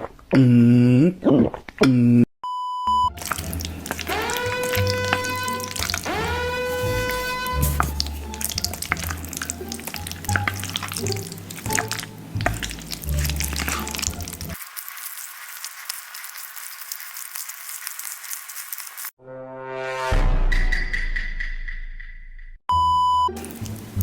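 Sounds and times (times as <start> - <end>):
background music: 3.1 - 14.6, 22.7 - 24.0
food crackling close up: 3.2 - 19.2, 23.4 - 24.0.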